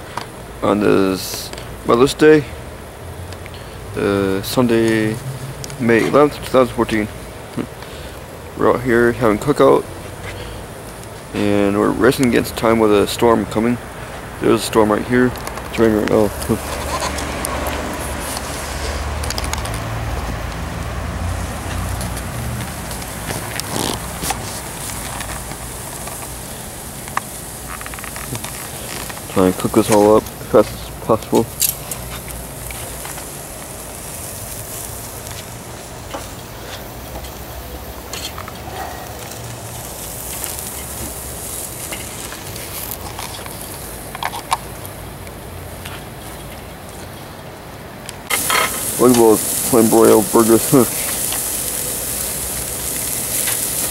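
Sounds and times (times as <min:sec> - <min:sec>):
burgers sizzling on a grill: 0:00.0 - 0:53.9
light rain falling: 0:00.0 - 0:53.9
small crackles: 0:15.2 - 0:53.9.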